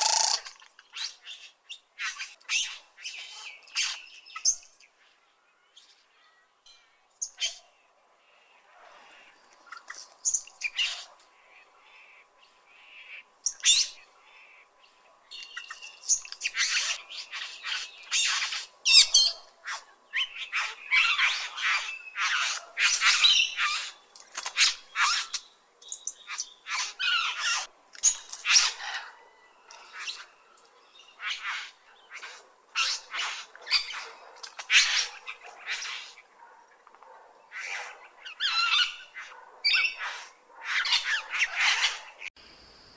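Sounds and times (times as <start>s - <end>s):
bird chirps and squawks: 0.0s - 1.4s, 10.6s - 11.2s, 15.6s - 25.4s, 26.3s - 30.4s, 31.2s - 36.3s, 37.5s - 42.3s.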